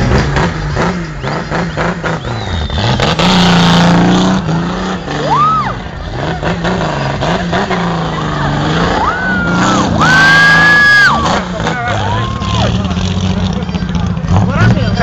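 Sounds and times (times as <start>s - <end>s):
car engine revving hard: 0.0s - 15.0s
high tyre squeal: 0.1s - 13.3s.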